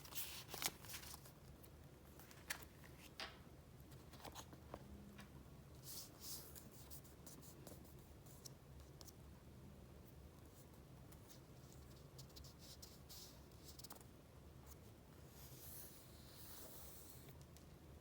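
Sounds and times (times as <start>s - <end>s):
paper rustling: 0.0s - 1.5s, 2.1s - 3.3s.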